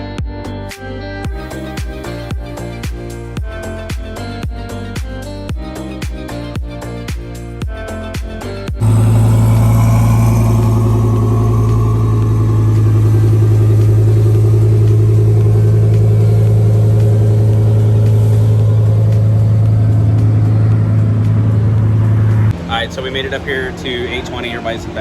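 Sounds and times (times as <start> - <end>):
music: 0.0 - 8.8
car engine cruising drone: 8.8 - 25.0.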